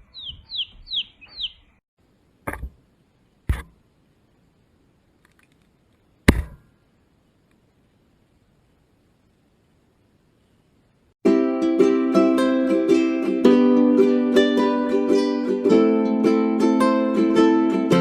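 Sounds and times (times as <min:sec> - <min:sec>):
bird chirps falling in pitch: 0:00.0 - 0:01.8.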